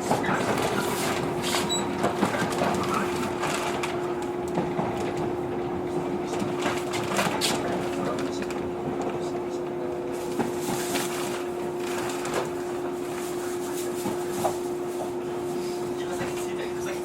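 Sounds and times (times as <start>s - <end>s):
clicks and knocks in cabin: 0.0s - 11.6s
train equipment humming: 0.0s - 17.0s.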